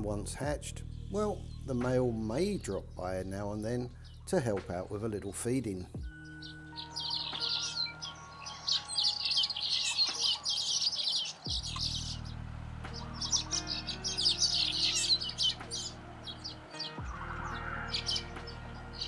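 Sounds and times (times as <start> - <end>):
steady low hum: 0.0 - 6.4, 11.5 - 19.0
birds chirping rapidly: 0.0 - 19.0.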